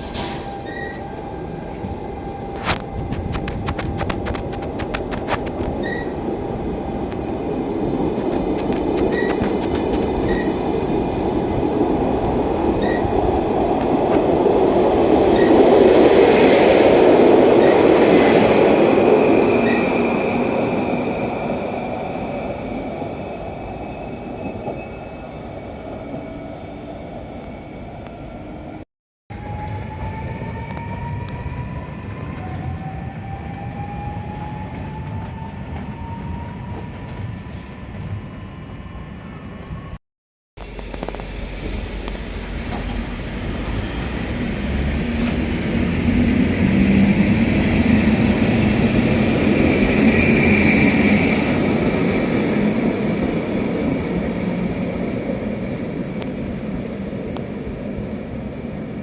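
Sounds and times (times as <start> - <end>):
electric train whine: 0.0 - 40.0, 40.6 - 59.0
wheels squealing: 9.0 - 10.6, 40.6 - 51.4
train rumbling past: 40.6 - 59.0.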